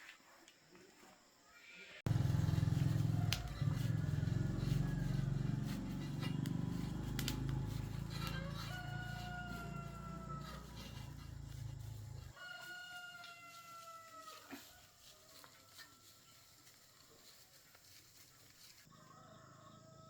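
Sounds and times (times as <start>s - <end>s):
small engine running: 2.1s - 12.3s
rooster crowing: 2.1s - 16.4s, 18.9s - 20.0s.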